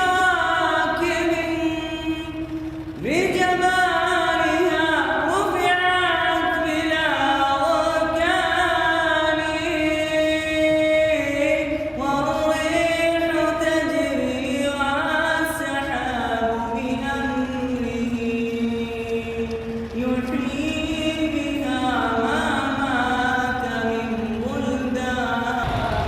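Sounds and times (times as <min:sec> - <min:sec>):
man singing unaccompanied: 0:00.0 - 0:26.0.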